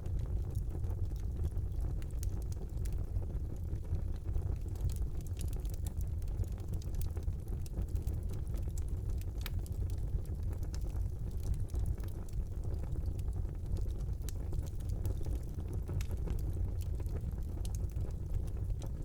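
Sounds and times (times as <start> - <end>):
fire crackling in fireplace: 0.0 - 19.0.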